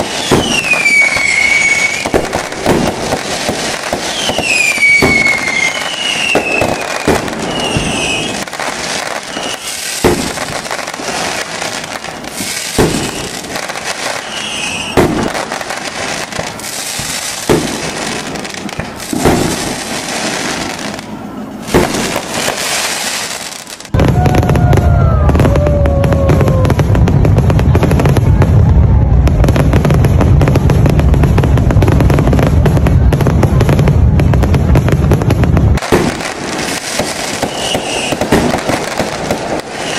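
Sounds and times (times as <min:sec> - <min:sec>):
fireworks bangs: 0:00.0 - 0:39.9
fireworks crackling: 0:00.0 - 0:39.9
falling whistles: 0:00.2 - 0:02.1, 0:04.1 - 0:08.4, 0:09.2 - 0:09.9, 0:12.9 - 0:13.4, 0:14.2 - 0:15.0, 0:37.4 - 0:38.2.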